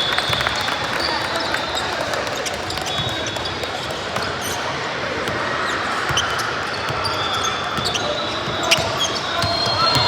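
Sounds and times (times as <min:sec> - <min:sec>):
murmur of crowd: 0:00.0 - 0:10.0
shoe squeaks: 0:06.1 - 0:10.0.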